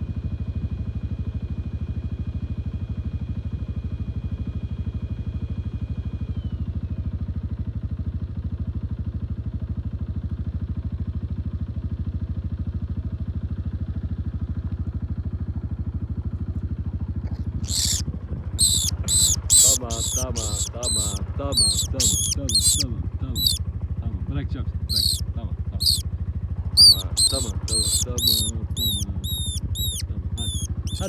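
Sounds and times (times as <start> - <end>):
small animal squeaking: 17.6 - 18.0, 18.6 - 22.8, 23.4 - 23.6, 24.9 - 25.2, 25.8 - 26.0, 26.8 - 31.0.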